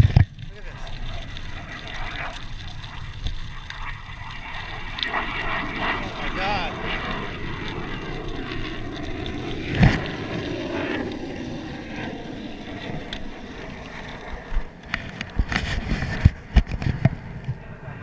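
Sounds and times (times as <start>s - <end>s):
distant jet engine rumble: 0.0s - 18.0s
wind on microphone: 0.0s - 18.0s.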